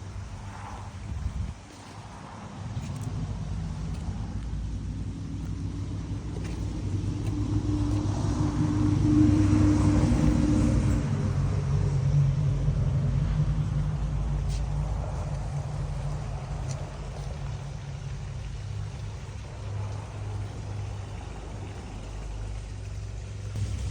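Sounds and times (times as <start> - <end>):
passing vehicle engine: 0.0 - 23.9.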